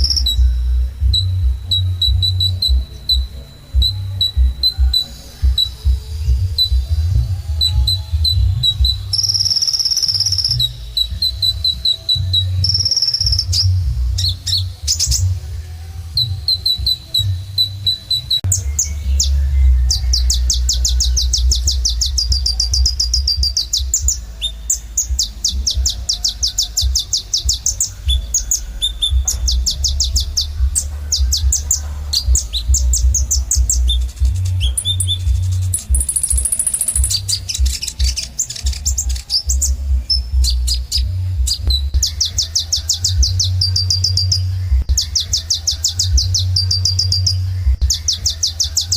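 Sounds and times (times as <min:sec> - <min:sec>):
bird chirping and trilling: 0:00.0 - 0:15.4, 0:16.1 - 0:48.9
low rumble: 0:18.4 - 0:42.4.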